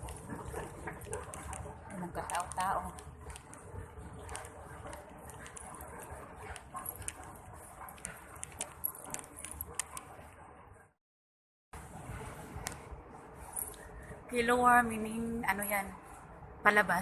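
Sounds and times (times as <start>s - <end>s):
low hum of empty station: 11.8s - 17.0s.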